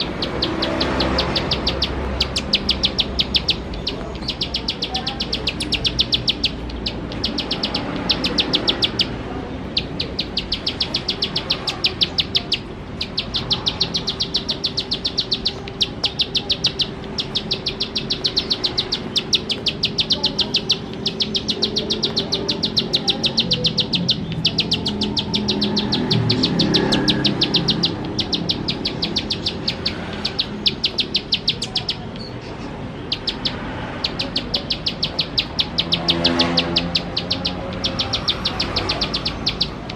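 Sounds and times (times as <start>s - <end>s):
bird singing rattling notes: 0.0s - 39.9s.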